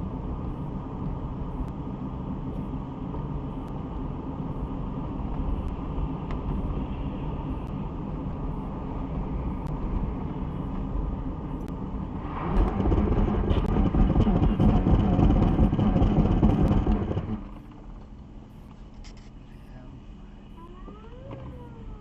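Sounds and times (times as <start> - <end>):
vehicle engine and tyres rumbling: 0.0 - 22.0.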